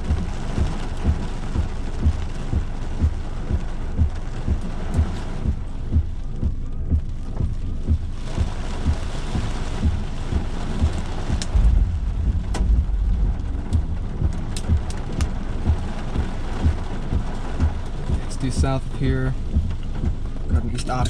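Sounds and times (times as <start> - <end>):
low buffeting rumbles: 0.0 - 21.0
rain: 0.0 - 21.0
raindrops tapping: 0.0 - 21.0
gusting storm wind: 7.4 - 20.6.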